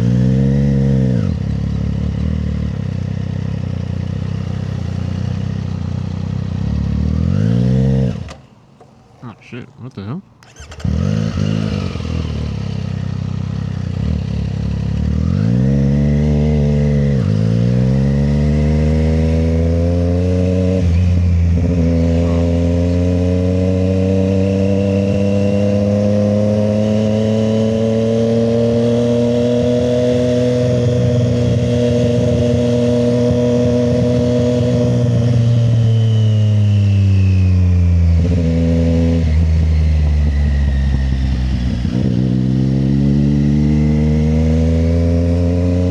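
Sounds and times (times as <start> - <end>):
motorcycle engine revving: 0.0 - 45.9
gear change: 7.8 - 15.1.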